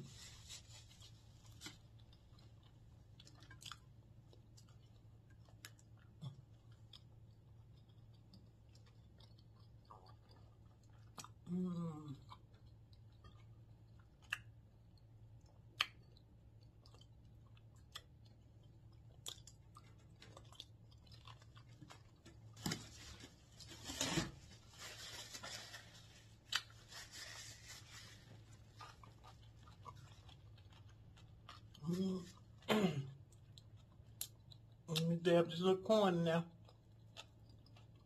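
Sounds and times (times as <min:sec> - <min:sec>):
person chewing and crunching food: 0:00.0 - 0:35.2, 0:36.5 - 0:38.0
mouth clicks and smacks: 0:14.1 - 0:14.6, 0:15.4 - 0:18.4.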